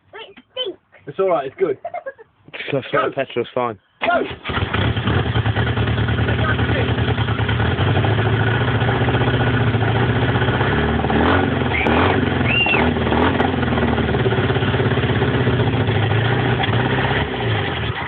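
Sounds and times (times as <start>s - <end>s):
car engine running: 4.4s - 18.0s.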